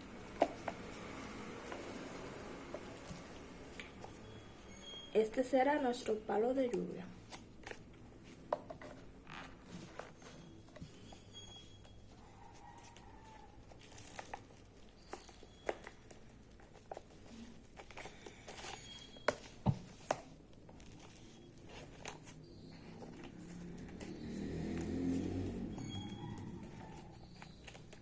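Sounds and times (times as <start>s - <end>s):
paper rustling and crinkling: 12.1s - 24.2s.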